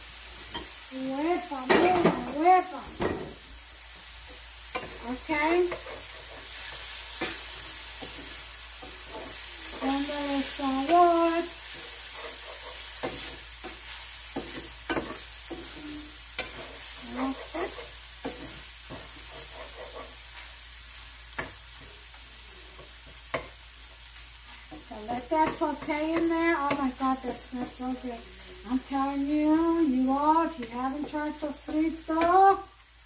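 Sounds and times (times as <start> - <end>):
mushrooms sizzling in a skillet: 0.0 - 33.0
wooden spoon scraping a pan: 4.3 - 23.6.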